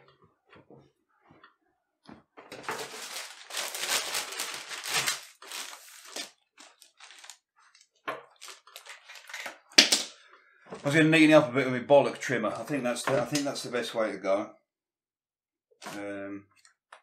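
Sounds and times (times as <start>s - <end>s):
newspaper rustling: 2.5s - 9.4s.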